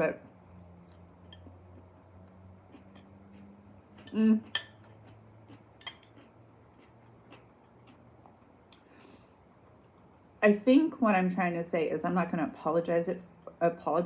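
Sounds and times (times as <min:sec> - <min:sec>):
low steady hum: 0:00.0 - 0:14.0
fork clicking against dish: 0:05.5 - 0:06.3.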